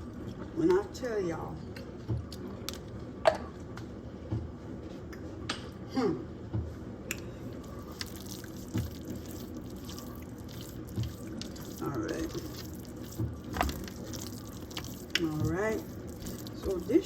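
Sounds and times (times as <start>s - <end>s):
wet food squelching: 7.4s - 17.0s.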